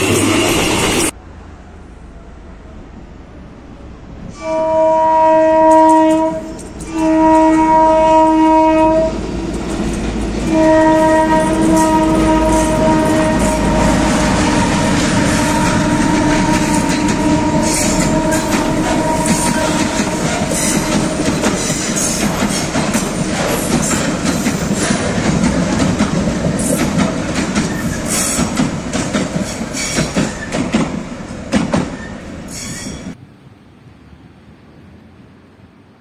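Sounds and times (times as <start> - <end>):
locomotive horn blasts: 4.3 - 9.2, 10.5 - 21.4
freight wagons rumbling past: 8.9 - 33.2
wheels clicking over rail joints: 9.2 - 13.7, 14.5 - 33.1.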